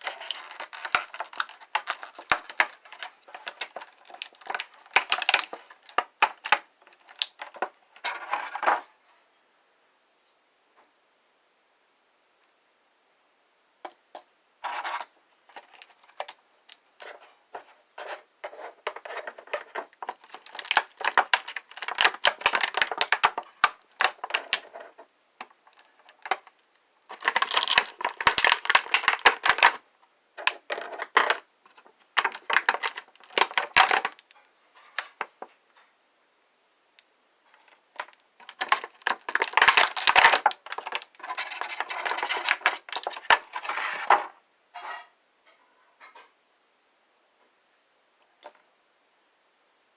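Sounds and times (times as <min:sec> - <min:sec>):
packaging rustling: 0:00.0 - 0:08.8, 0:14.6 - 0:16.4, 0:17.0 - 0:26.5, 0:27.1 - 0:29.8, 0:30.4 - 0:34.3, 0:37.9 - 0:44.3.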